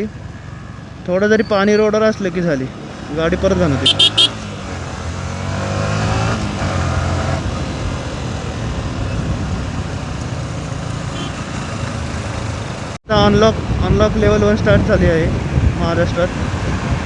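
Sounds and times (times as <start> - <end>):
wind and road noise: 0.0 - 17.0
motorcycle engine accelerating: 0.1 - 13.0.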